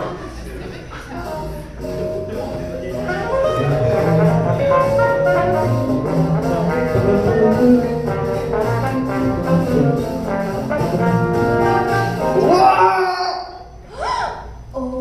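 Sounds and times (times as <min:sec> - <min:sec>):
upbeat brass music with beat: 0:01.8 - 0:12.6.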